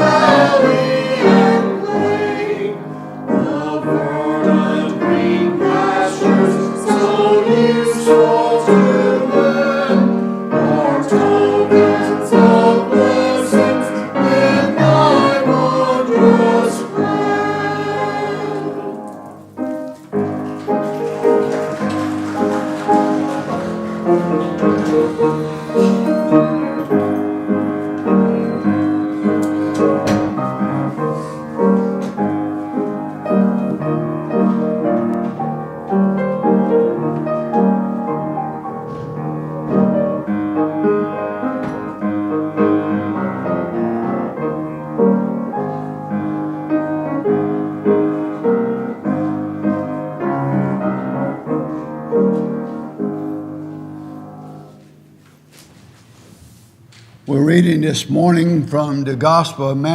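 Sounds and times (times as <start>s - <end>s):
piano playing a hymn: 0.0s - 59.9s.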